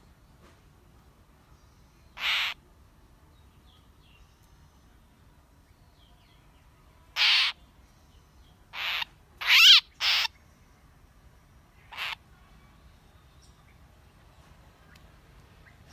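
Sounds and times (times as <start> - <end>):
bird harsh calls: 2.2 - 2.6, 7.2 - 7.6, 8.7 - 10.3, 11.8 - 12.2.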